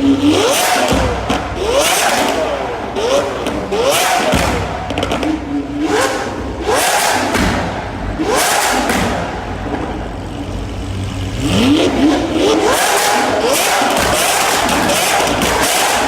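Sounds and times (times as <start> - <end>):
car engine revving loudly: 0.0 - 16.0.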